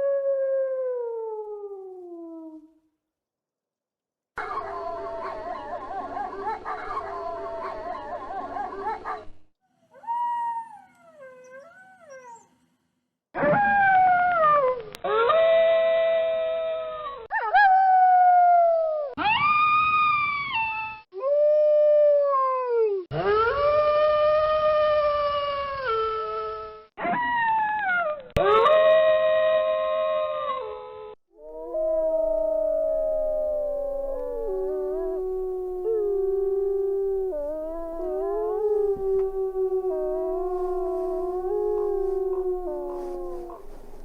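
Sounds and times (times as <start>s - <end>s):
wolves howling: 4.4s - 9.3s, 31.4s - 44.0s.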